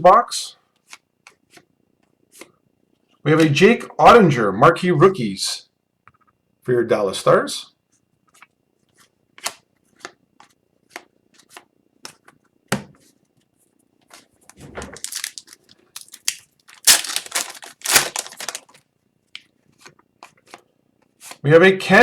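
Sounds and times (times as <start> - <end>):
foil wrapper crinkling and tearing: 14.9 - 18.8.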